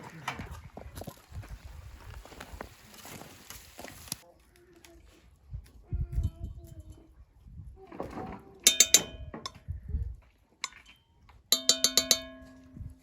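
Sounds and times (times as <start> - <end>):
metal utensil rapping on metal pot: 8.6 - 9.3, 11.5 - 13.0.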